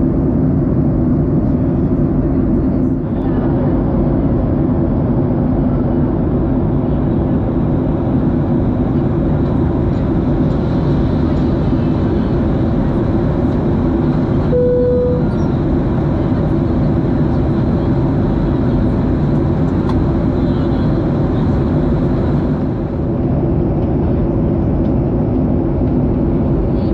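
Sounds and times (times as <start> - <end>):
airliner cabin engine noise: 0.0 - 26.9
single tone: 14.5 - 15.6.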